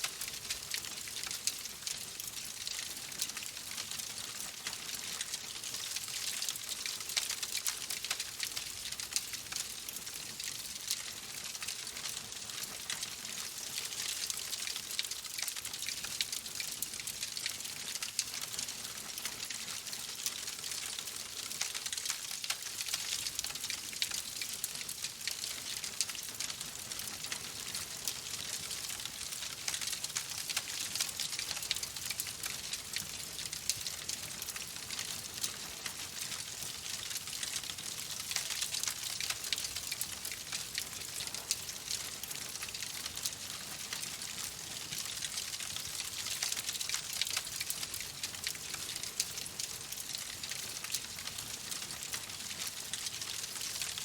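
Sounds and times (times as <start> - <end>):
wood fire crackling: 25.4 - 53.8.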